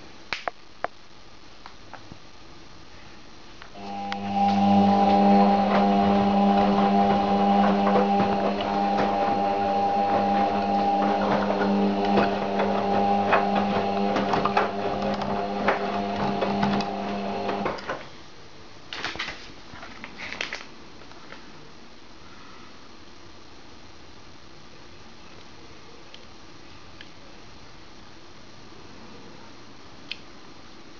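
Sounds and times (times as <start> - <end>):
washing machine motor hum: 3.7 - 18.0.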